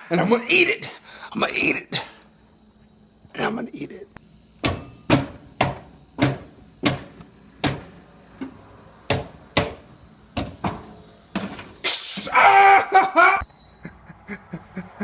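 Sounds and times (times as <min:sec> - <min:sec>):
sharp knocks: 0:04.6 - 0:08.5, 0:09.1 - 0:11.7.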